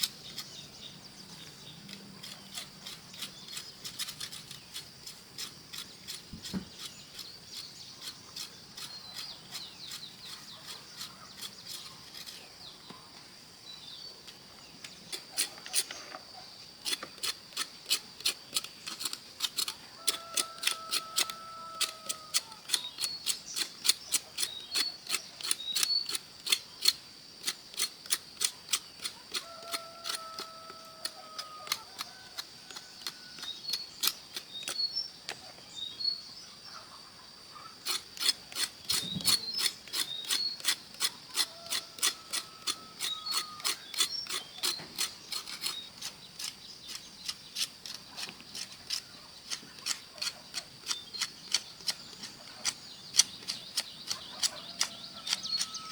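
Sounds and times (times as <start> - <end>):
sharp clicks: 47.2 - 55.8.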